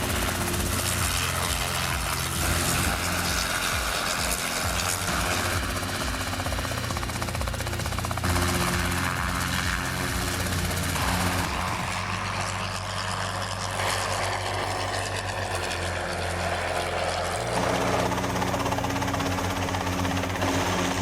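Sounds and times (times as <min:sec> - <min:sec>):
helicopter engine and rotor: 0:00.0 - 0:21.0.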